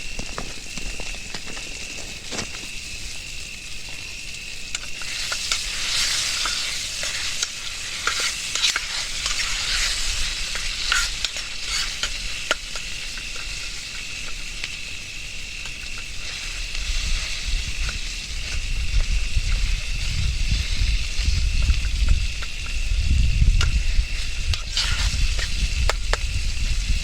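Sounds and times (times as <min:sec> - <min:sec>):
curry sizzling in a pan: 0:00.0 - 0:27.0
spoon scraping a pan: 0:04.8 - 0:14.5, 0:23.8 - 0:26.1.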